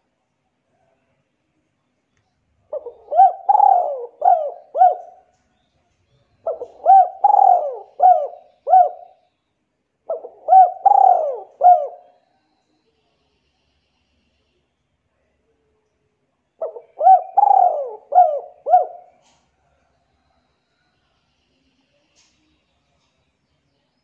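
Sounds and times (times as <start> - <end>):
bird calling: 2.8 - 5.3, 6.4 - 9.2, 10.1 - 12.2, 16.6 - 19.4.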